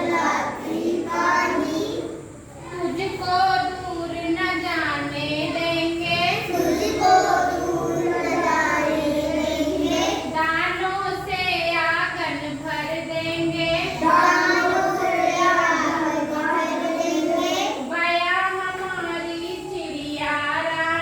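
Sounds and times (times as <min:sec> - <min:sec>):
child singing: 0:06.3 - 0:10.4, 0:13.9 - 0:17.9.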